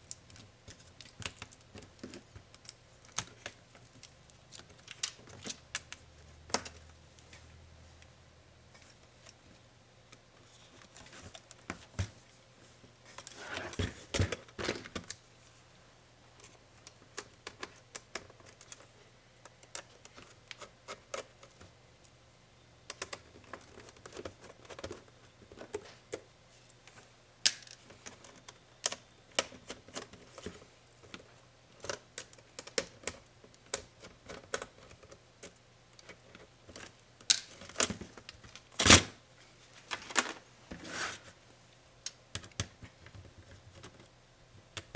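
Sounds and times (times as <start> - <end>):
laptop parts clicking and tapping: 22.9 - 26.3, 42.1 - 44.1.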